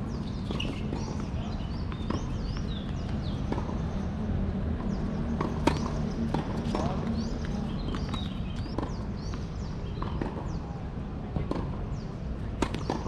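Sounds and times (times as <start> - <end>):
birds chirping: 0.0 - 10.7
tennis ball bouncing on court: 0.2 - 4.1, 4.8 - 10.7, 11.3 - 13.0
racket striking ball: 5.4 - 7.3, 10.0 - 10.6, 12.6 - 13.0.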